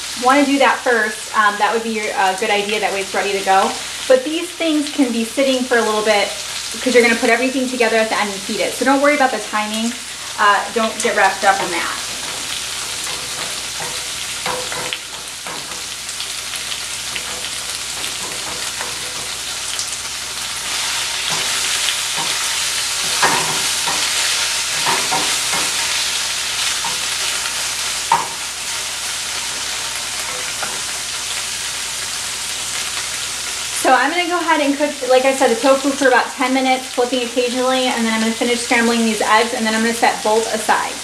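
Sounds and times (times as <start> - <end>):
tofu and eggs sizzling in oil: 0.0 - 41.0
wooden spoon scraping pans: 11.2 - 19.6, 20.6 - 28.8.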